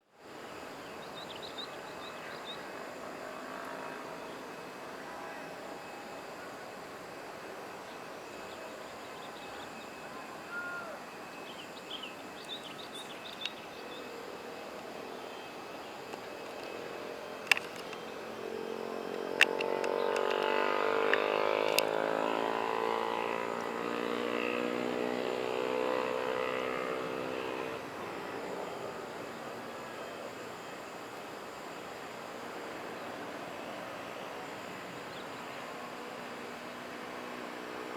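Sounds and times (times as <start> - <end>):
jet airliner passing by: 0.3 - 37.9
sharp clicks: 17.4 - 18.2, 19.1 - 20.5.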